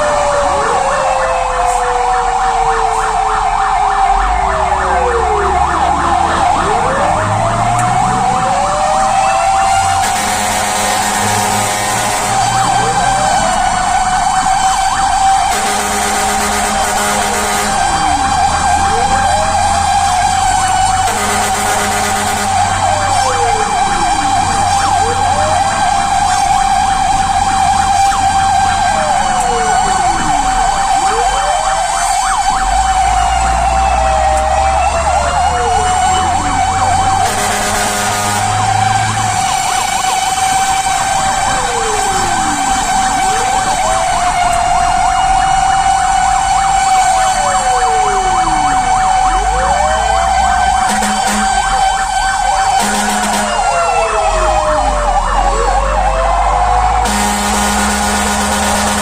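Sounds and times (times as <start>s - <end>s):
steady siren wail: 0.0s - 59.0s
sweeping siren: 0.0s - 59.0s
truck engine running: 3.4s - 53.8s, 54.6s - 59.0s
short harsh horn blasts: 9.9s - 12.5s, 15.5s - 17.8s, 21.0s - 22.8s, 37.2s - 38.8s, 50.9s - 51.7s, 52.8s - 53.7s, 57.0s - 59.0s.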